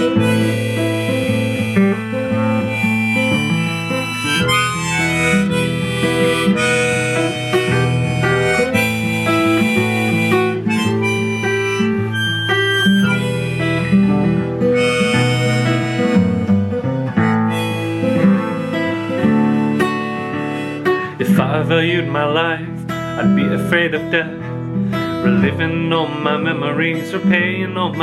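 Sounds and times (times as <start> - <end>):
acoustic guitar: 0.0 - 28.0
harmonica melody: 0.0 - 28.0.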